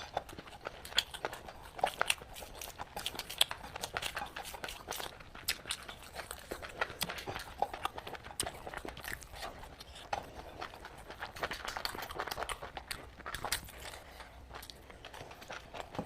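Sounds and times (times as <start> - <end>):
person chewing and lip smacking: 0.0 - 16.0.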